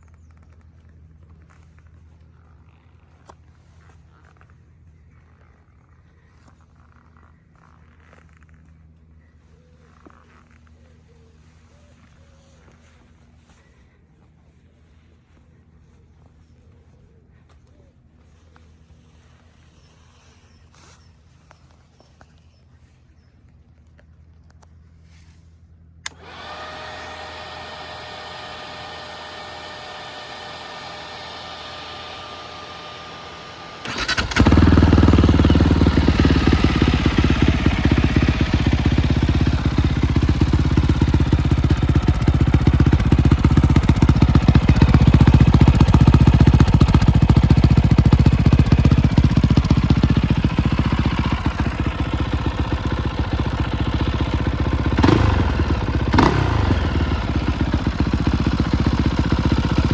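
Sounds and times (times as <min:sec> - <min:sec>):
motorcycle engine starting and idling: 0:00.0 - 0:17.0, 0:26.0 - 0:59.9
engine revving: 0:26.0 - 0:59.9.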